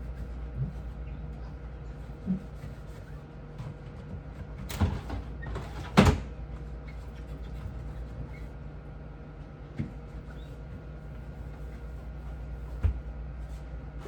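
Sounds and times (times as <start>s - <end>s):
steady low hum: 0.0s - 5.4s.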